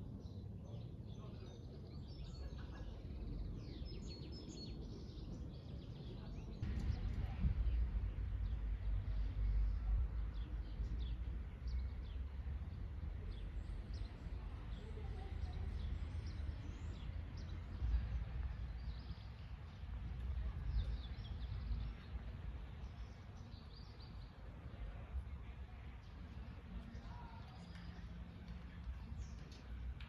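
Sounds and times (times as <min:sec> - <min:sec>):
low outdoor rumble: 0:00.0 - 0:30.0
small birds chirping: 0:00.1 - 0:30.0.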